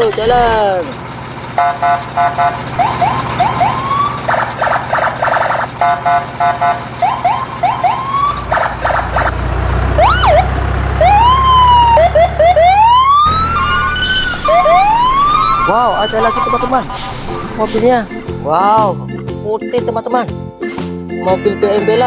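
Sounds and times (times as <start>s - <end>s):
siren wailing: 1.6s - 9.3s, 9.9s - 18.6s
low rumble: 13.3s - 19.2s.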